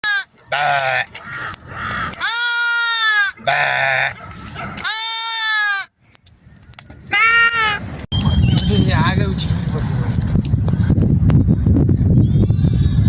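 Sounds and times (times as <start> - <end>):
sheep bleating: 0.0 - 1.4, 2.0 - 4.2, 4.8 - 5.9, 7.1 - 7.8, 12.2 - 13.0.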